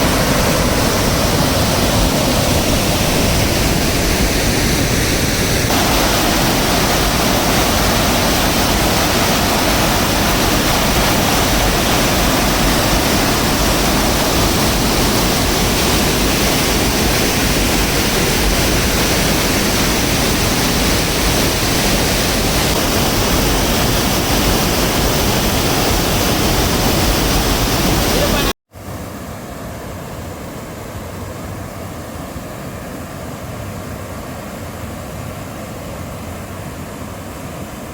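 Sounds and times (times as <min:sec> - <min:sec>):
floodwater rushing: 0:00.0 - 0:28.5.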